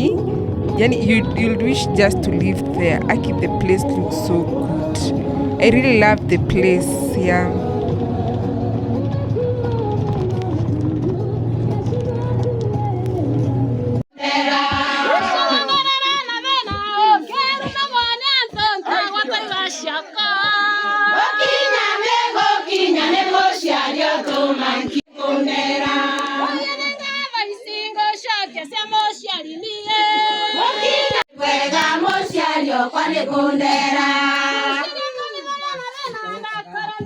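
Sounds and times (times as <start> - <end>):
choir singing: 0.0 - 8.3, 14.2 - 16.4, 18.8 - 27.8, 30.2 - 35.3.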